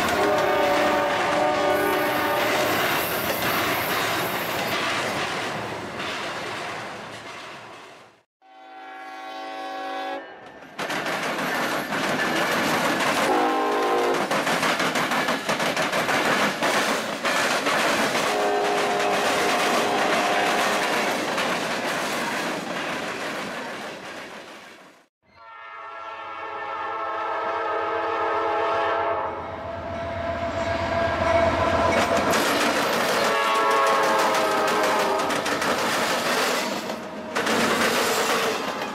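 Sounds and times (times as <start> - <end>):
locomotive horn blast: 0.0 - 2.8, 8.4 - 10.4, 13.3 - 14.2, 18.3 - 21.0, 25.4 - 32.0, 33.2 - 35.3
train wheels clattering: 0.0 - 8.1, 10.5 - 24.7, 31.9 - 38.9.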